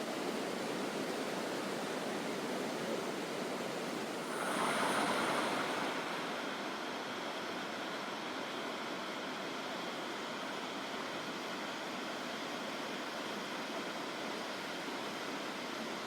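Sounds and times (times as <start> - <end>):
waterfall and river rushing: 4.2 - 10.5.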